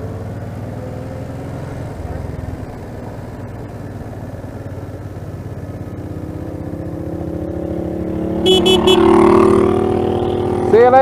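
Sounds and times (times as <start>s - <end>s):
motorcycle engine low throb: 2.1s - 9.6s
approaching engine rising pitch: 5.9s - 10.7s.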